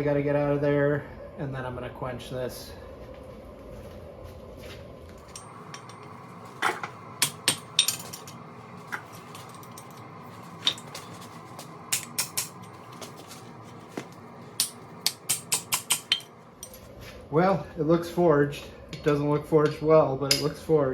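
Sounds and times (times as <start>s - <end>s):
hammer striking steel on anvil: 5.3s - 8.4s, 11.9s - 12.9s, 14.5s - 16.8s, 18.9s - 20.6s.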